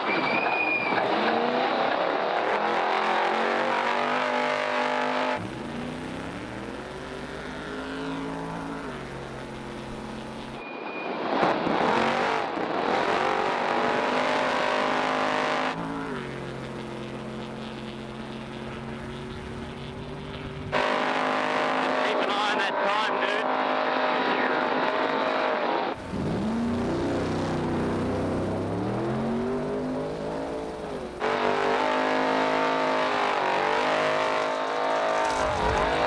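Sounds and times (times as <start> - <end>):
truck engine running hard: 3.3 - 10.6, 14.2 - 22.1, 26.0 - 36.0
road and wind noise: 34.7 - 36.0.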